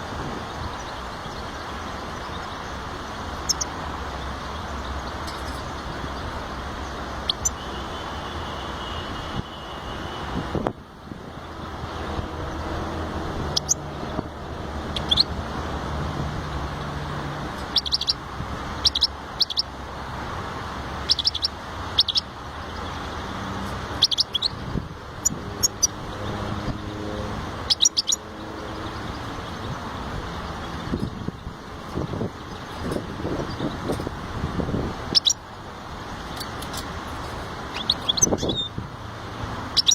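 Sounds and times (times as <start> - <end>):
goldfinch chirping: 0.5 - 7.7, 13.4 - 14.2, 14.8 - 15.4, 17.6 - 18.2, 18.8 - 19.8, 21.0 - 23.3, 23.9 - 24.6, 25.2 - 26.5, 27.6 - 34.1, 35.1 - 38.8.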